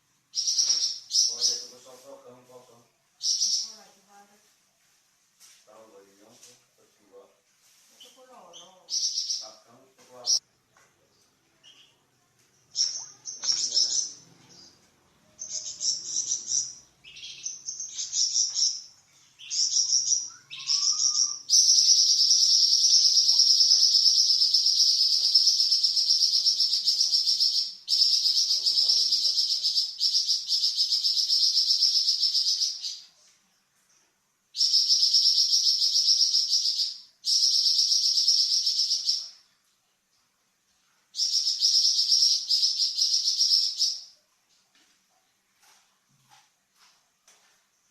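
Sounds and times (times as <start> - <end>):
songbird singing: 0.3 - 2.2, 3.2 - 4.0, 8.0 - 33.1, 34.6 - 39.4, 41.2 - 44.2
high buzzing bird trills: 15.4 - 33.0.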